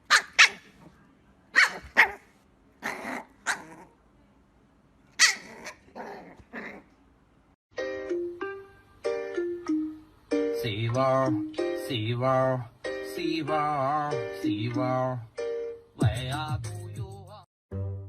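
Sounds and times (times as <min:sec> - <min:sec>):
dog barking: 0:00.0 - 0:00.7, 0:01.5 - 0:02.2.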